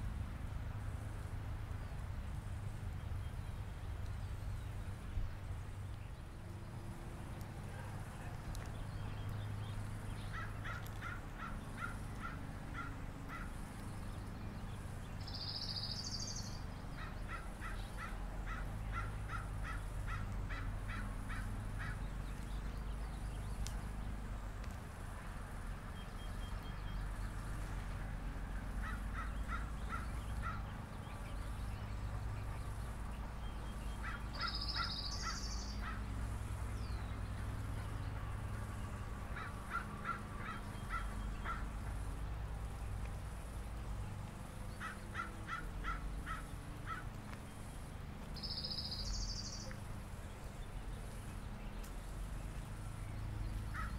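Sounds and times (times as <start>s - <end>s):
high-pitched bird call: 34.1s - 35.9s.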